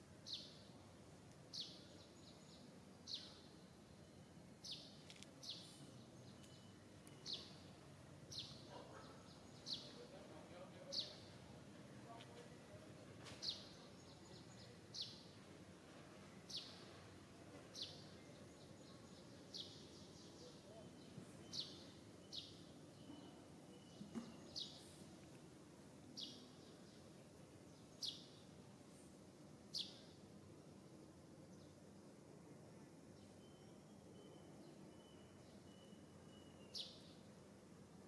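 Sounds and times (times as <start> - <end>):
faint outdoor background noise: 0.0 - 38.0
bird chirping: 0.2 - 0.7, 1.5 - 11.4, 13.4 - 15.5, 16.4 - 17.0, 17.7 - 25.1, 26.2 - 28.5, 29.7 - 30.2, 33.2 - 37.3.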